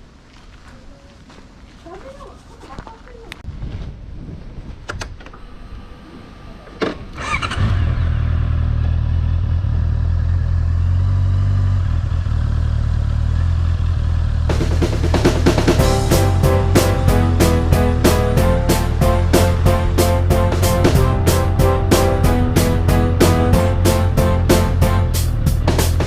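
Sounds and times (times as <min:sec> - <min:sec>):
motorcycle engine starting: 0:04.9 - 0:26.0
motorcycle engine idling: 0:07.2 - 0:17.9
background music: 0:14.5 - 0:26.0.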